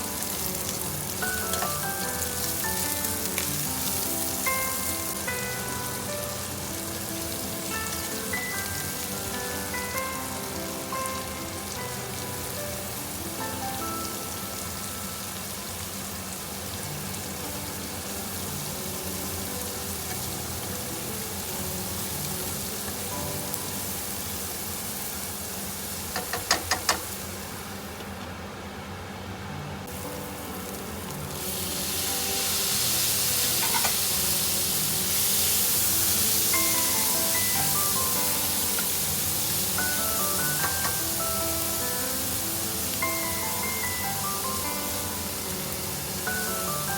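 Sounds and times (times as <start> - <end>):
background music: 0.0 - 15.5, 29.8 - 46.9
food sizzling in a frying pan: 0.0 - 29.0, 29.8 - 46.9.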